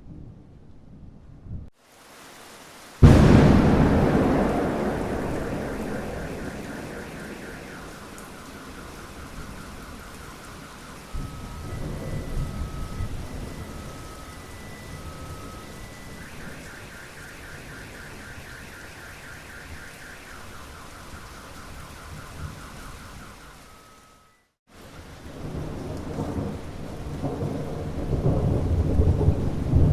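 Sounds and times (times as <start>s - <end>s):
steady rain: 1.8s - 29.9s
thunder rumbling: 3.0s - 23.5s, 25.1s - 29.9s
alarm beeping: 3.0s - 24.5s.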